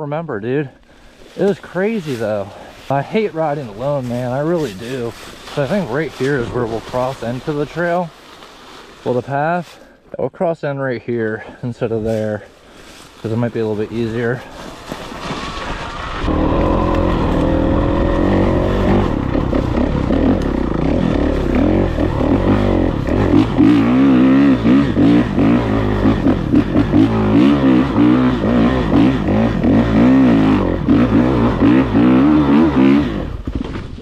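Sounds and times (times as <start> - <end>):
dirt bike engine revving: 13.9 - 33.5.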